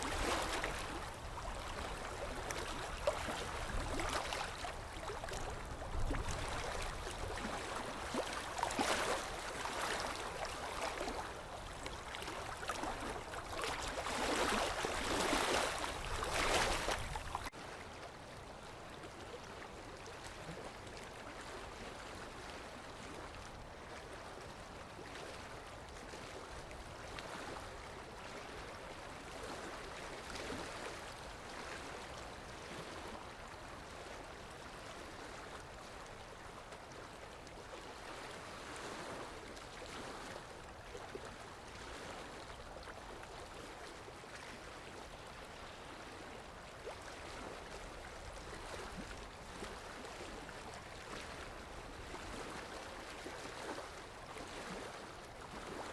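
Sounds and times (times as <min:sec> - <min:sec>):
water flowing: 0:00.0 - 0:17.6.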